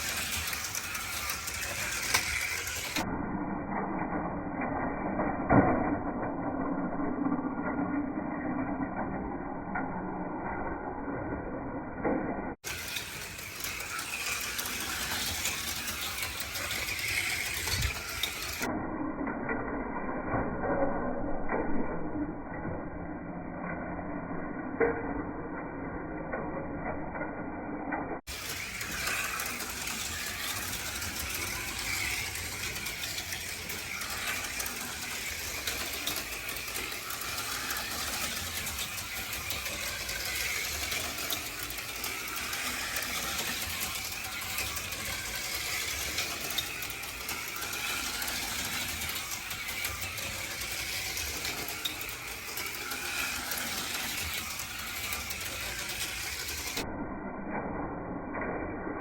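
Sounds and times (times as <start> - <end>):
slot car motors whirring: 0.0 - 3.1, 12.5 - 18.7, 28.3 - 56.8
cars rattling in track slot: 12.6 - 18.7.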